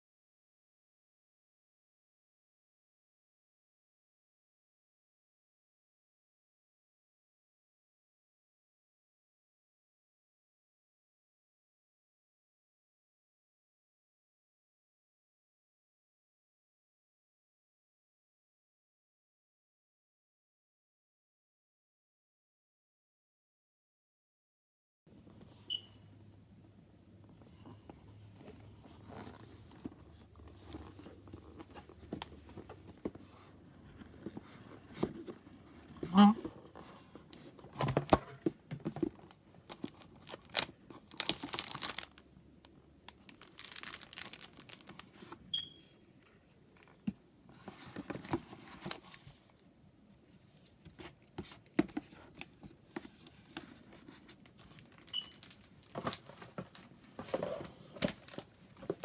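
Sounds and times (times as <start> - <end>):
paper and plastic rustling: 27.4 - 42.2, 43.1 - 45.4, 46.8 - 49.6, 50.5 - 59.0.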